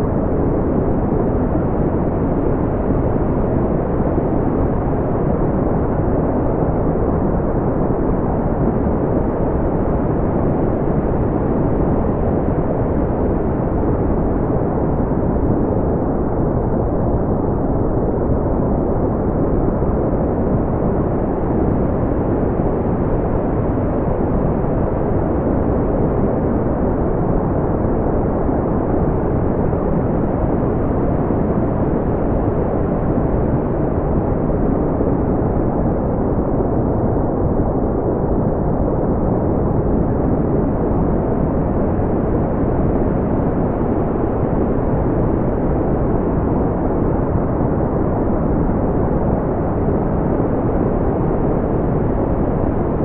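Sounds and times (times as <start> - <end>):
deep steady brown noise hiss: 0.0 - 53.0.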